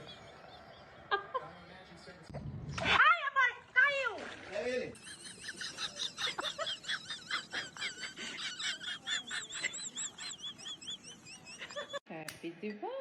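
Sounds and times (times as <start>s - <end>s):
small birds chirping: 0.0s - 2.3s, 8.6s - 12.0s.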